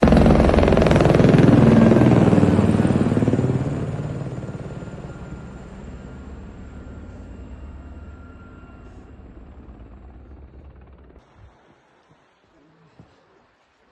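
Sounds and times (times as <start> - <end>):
helicopter rotor chopping: 0.0 - 11.2.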